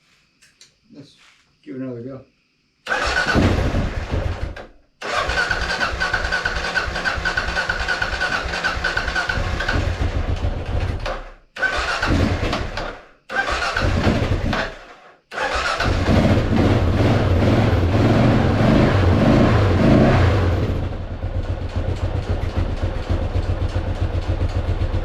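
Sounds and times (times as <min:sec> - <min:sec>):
motorcycle engine running: 0:06.1 - 0:11.1, 0:15.8 - 0:25.0.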